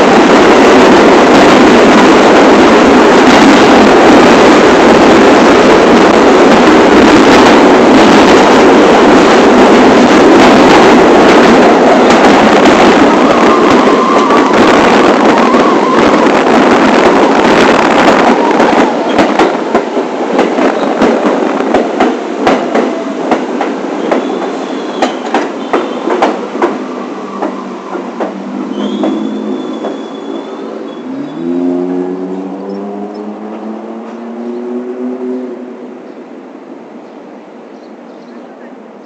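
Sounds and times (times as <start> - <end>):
subway train on track: 0.0 - 39.0
high wheel squeals: 26.9 - 33.1.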